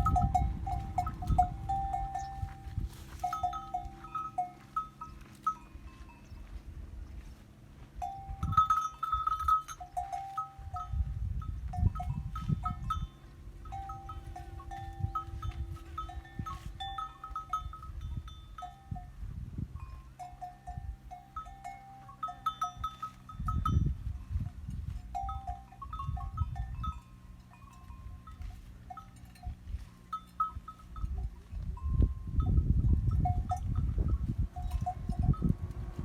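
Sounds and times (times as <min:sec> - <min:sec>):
livestock bells clinking: 0:00.0 - 0:35.9
low rumbling noise: 0:30.7 - 0:36.0.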